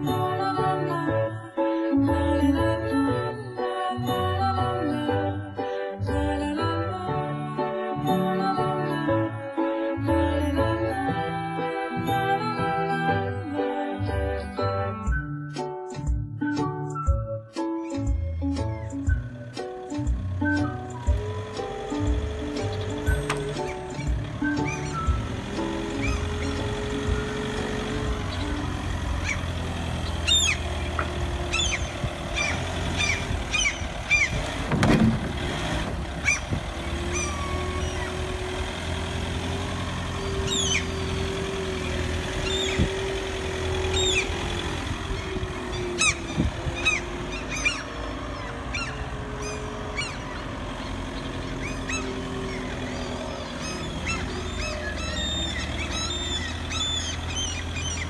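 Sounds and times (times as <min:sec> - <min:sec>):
birds chirping: 0:18.6 - 0:34.7, 0:35.3 - 0:58.0.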